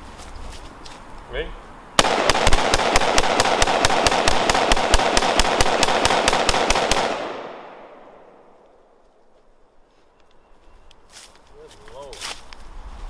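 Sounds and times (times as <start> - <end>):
rifle rapid gunshots: 2.0 - 8.1
gunshot echo: 2.0 - 8.9.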